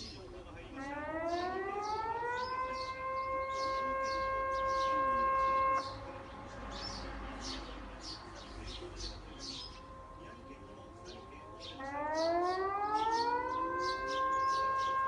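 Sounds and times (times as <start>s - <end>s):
siren wailing: 0.7s - 6.2s, 9.3s - 15.0s.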